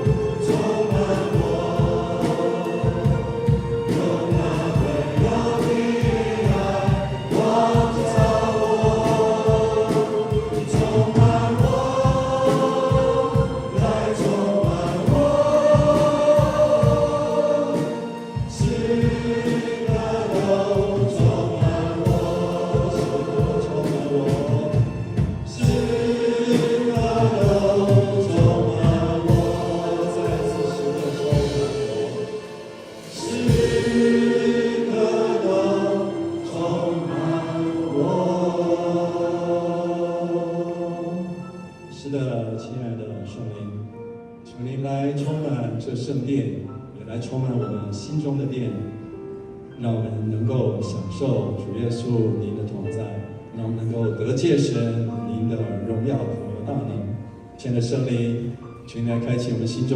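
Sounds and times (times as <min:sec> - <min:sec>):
steady beat: 0:00.0 - 0:35.9
band and congregation singing: 0:00.0 - 0:43.6
keyboard accompaniment: 0:00.0 - 0:59.9.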